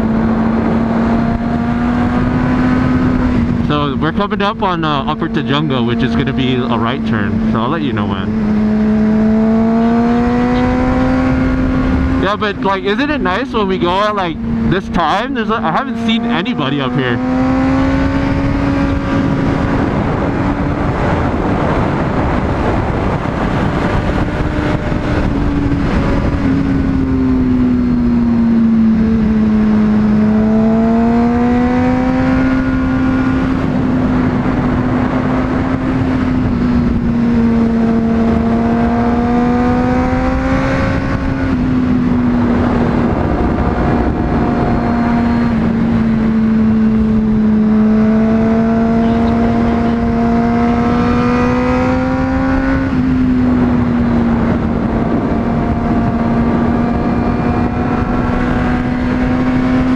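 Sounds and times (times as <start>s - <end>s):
motorcycle engine at high revs: 0.0s - 59.9s
wind noise: 0.0s - 59.9s.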